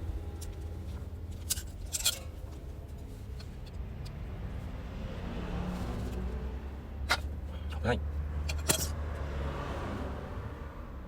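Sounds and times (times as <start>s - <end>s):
metal tools clinking: 1.4s - 2.5s, 8.5s - 9.0s.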